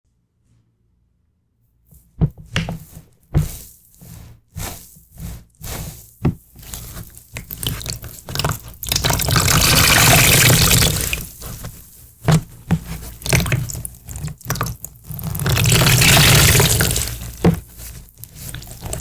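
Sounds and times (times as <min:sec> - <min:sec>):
water splashing and dripping: 0:07.6 - 0:11.3, 0:15.3 - 0:17.4
stream of running water: 0:09.0 - 0:11.3, 0:15.5 - 0:17.4.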